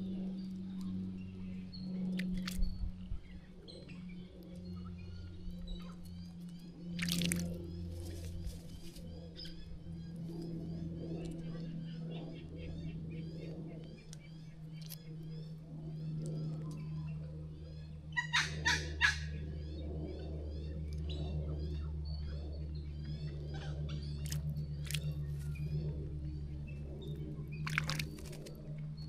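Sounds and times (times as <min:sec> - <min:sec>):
small birds chirping: 0:00.0 - 0:29.0
steady low hum: 0:00.0 - 0:29.0
bird splashing in water: 0:02.2 - 0:02.6, 0:06.9 - 0:08.5, 0:24.2 - 0:25.5, 0:27.6 - 0:28.5.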